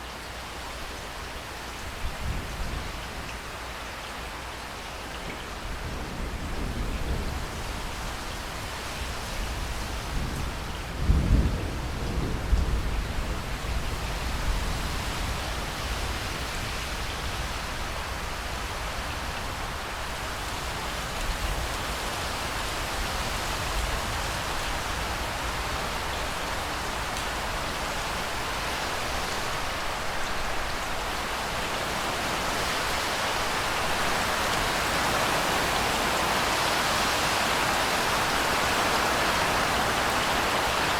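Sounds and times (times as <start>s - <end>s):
steady rainfall: 0.0s - 40.9s
low rumble of thunder: 5.6s - 18.4s.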